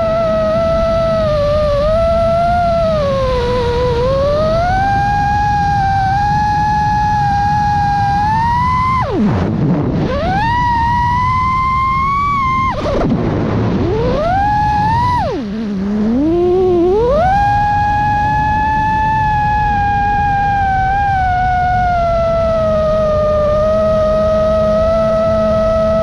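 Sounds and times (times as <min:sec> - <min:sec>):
drone motors whining: 0:00.0 - 0:26.0
low rushing noise: 0:05.1 - 0:23.6.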